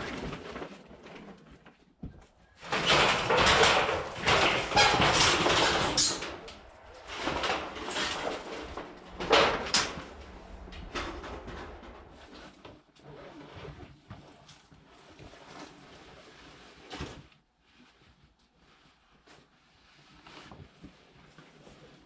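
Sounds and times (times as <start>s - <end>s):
plastic tarp rustling and crinkling: 2.5s - 13.6s.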